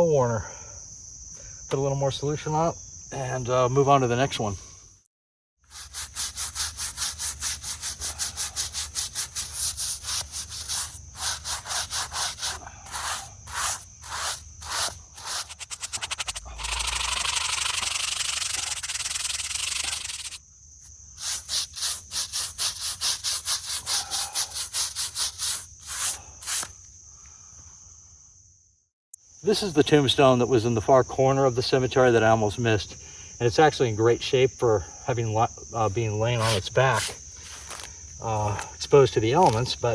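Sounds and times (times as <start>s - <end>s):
brush scrubbing stone: 5.6s - 20.4s, 21.2s - 26.7s, 36.4s - 37.9s
steady hiss: 21.1s - 27.4s.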